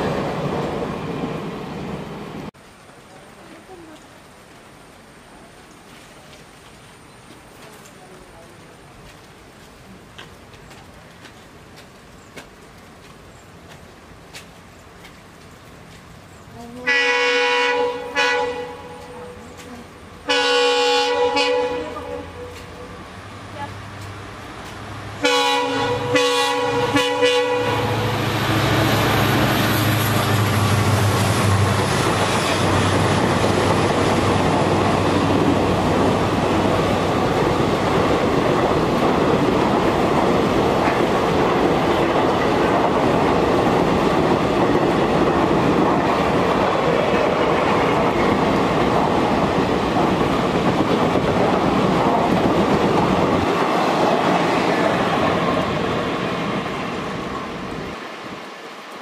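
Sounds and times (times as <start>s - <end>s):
train wheels rumbling: 5.9s - 58.6s
locomotive horn blasts: 16.9s - 19.5s, 20.3s - 22.8s, 25.2s - 28.2s.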